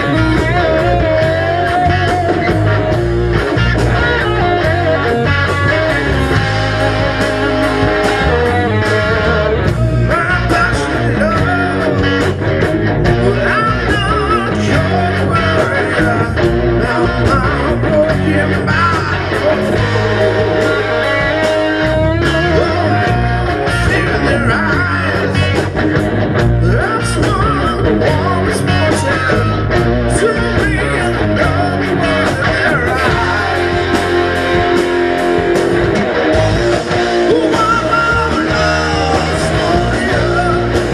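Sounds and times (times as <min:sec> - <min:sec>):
bass guitar: 0:00.0 - 0:40.9
drums keeping a steady beat: 0:00.0 - 0:40.9
electric guitar: 0:00.0 - 0:40.9
person singing: 0:06.1 - 0:12.4, 0:13.1 - 0:25.6, 0:26.6 - 0:34.3, 0:37.0 - 0:40.9.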